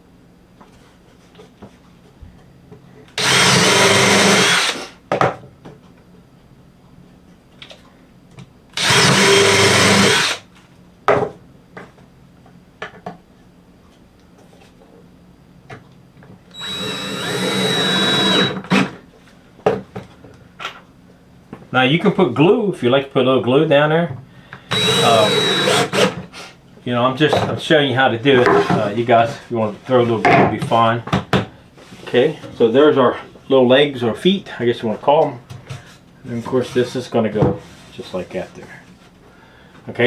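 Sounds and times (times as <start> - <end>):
power drill driving screws into wood: 3.2 - 4.9, 8.8 - 10.4, 16.5 - 19.0, 24.7 - 26.2.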